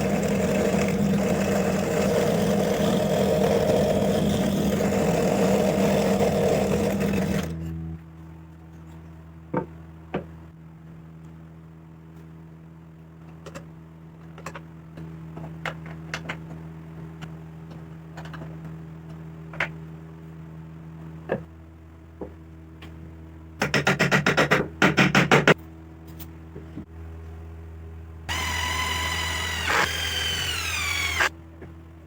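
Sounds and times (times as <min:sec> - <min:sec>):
taps and knocks of wood and tools: 0:23.6 - 0:25.6
steady low hum: 0:25.8 - 0:32.0
rapid loud strokes: 0:28.3 - 0:31.3.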